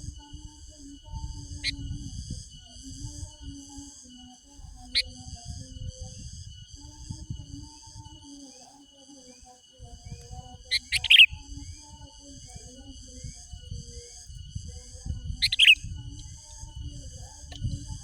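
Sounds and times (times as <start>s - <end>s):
bird calling in quick bursts: 10.7s - 11.3s, 15.5s - 15.8s.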